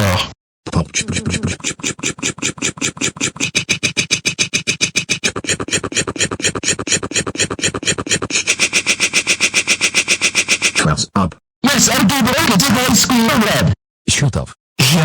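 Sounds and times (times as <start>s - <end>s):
rapid electronic stutter pulses: 0.7s - 10.9s.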